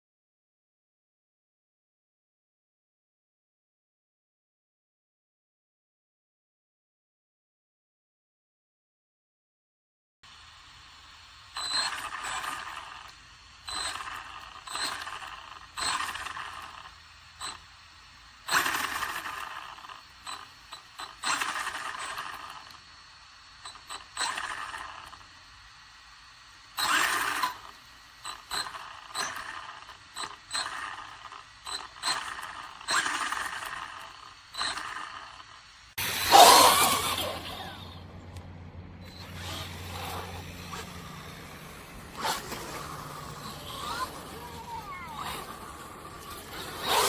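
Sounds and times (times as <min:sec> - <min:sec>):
rc truck motor bursts: 0:10.3 - 0:47.0
parts rattling: 0:36.0 - 0:47.0
tyres scraping over ground: 0:36.0 - 0:47.0.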